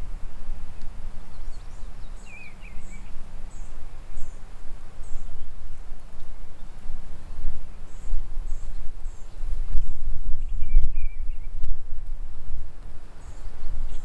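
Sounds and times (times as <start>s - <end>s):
wind buffeting microphone: 0.0s - 14.0s
small bird warbling call: 0.7s - 5.6s.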